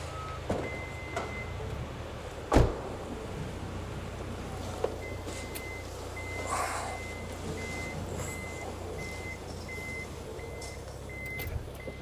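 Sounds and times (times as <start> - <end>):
electronic beeper short beeps: 5.0 - 12.0.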